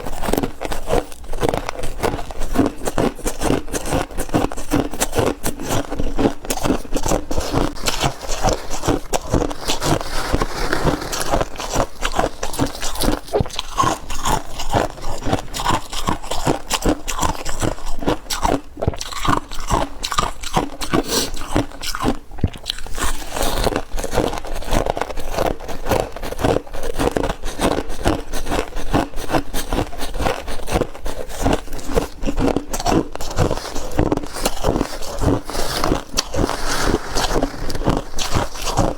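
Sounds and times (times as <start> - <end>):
frost being chewed crunchily: 0.0 - 38.9.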